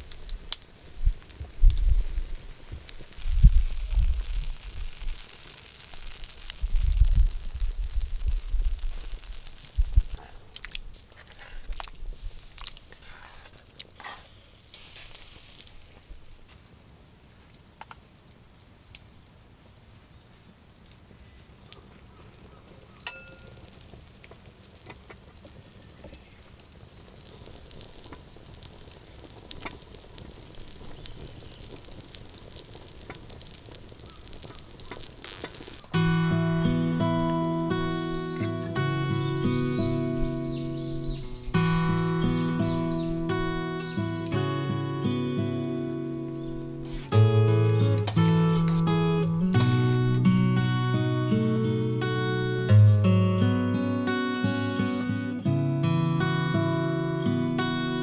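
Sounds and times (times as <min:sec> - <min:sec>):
food sizzling in a pan: 0:00.0 - 0:10.3, 0:12.0 - 0:16.3, 0:23.0 - 0:45.3
sharp metal clink: 0:23.1 - 0:23.6.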